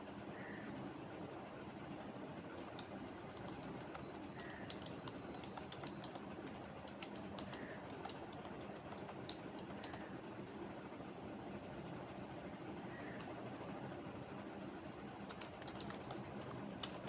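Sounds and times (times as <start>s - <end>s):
low background hum: 0.0s - 17.0s
keyboard key clicks: 2.6s - 10.0s, 15.3s - 17.0s.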